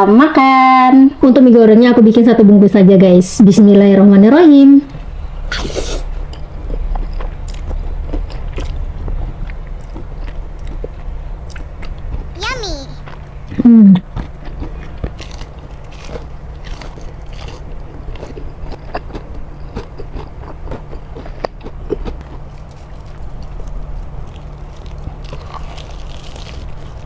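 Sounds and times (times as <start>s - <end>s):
chewing soft noodles: 14.1s - 27.0s.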